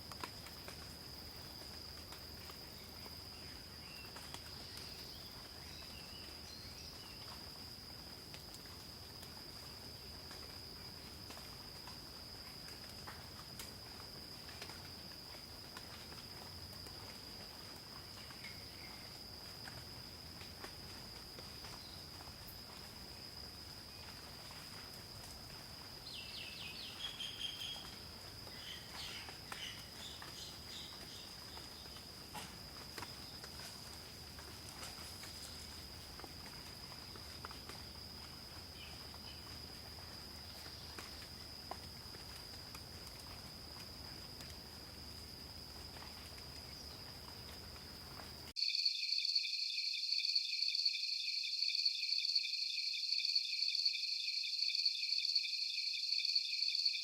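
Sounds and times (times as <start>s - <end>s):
high insect trill: 0.0s - 57.0s
rapidly pulsing insect chorus: 0.0s - 57.0s.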